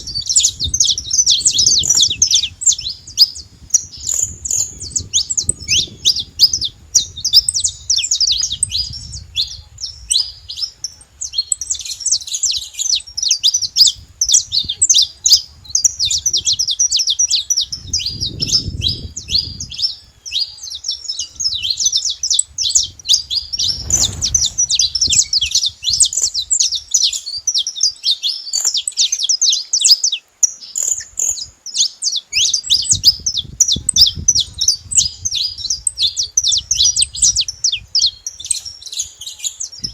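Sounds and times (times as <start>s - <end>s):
finch singing high chirps: 0.0s - 39.9s
faint low rumble: 22.6s - 26.5s.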